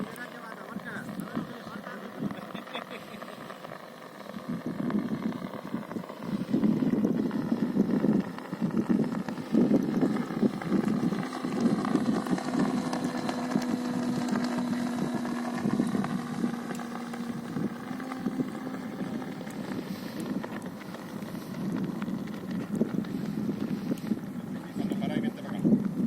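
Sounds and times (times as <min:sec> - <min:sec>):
light aircraft piston engine: 0:00.0 - 0:26.0.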